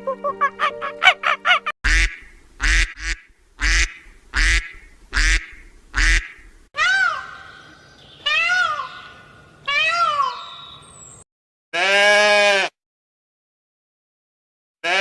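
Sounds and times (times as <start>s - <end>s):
duck quacking: 0.0s - 6.5s.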